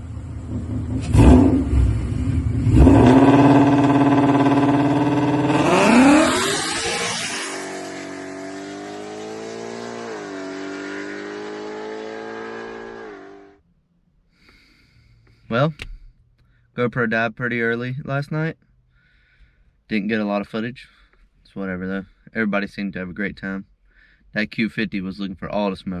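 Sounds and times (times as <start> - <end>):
car engine revving: 0.0 - 13.6.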